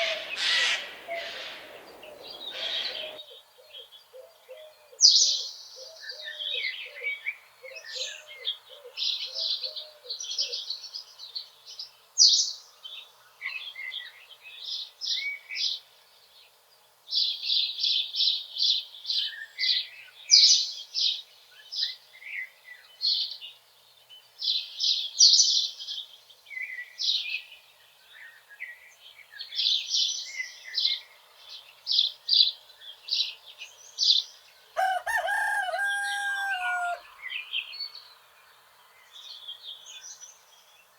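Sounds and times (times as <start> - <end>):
rooster crowing: 0.0 - 3.2, 34.8 - 37.1
songbirds trilling and chirping: 0.0 - 40.9.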